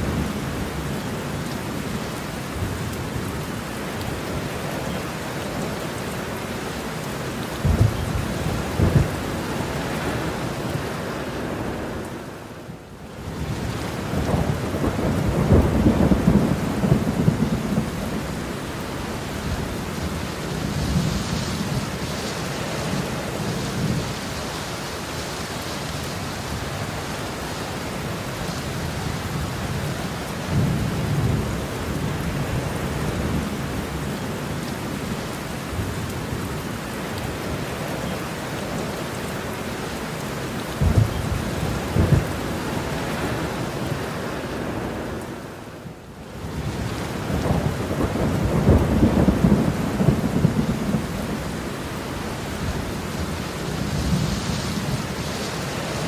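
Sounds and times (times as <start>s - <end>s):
heavy rain falling: 0.0s - 56.0s
sharp thunder claps: 7.6s - 9.2s
thunder rumbling: 7.6s - 10.6s, 13.5s - 22.1s, 40.7s - 44.0s, 46.5s - 55.4s.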